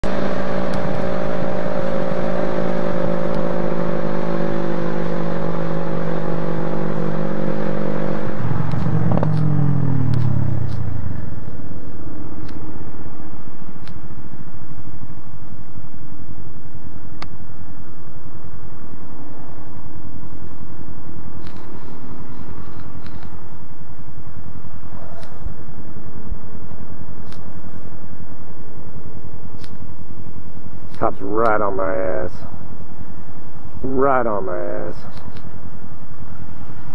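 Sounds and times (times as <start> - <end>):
wind and road noise: 0.0 - 36.9
sharp clicks: 8.6 - 9.5, 10.1 - 10.9, 35.1 - 35.5.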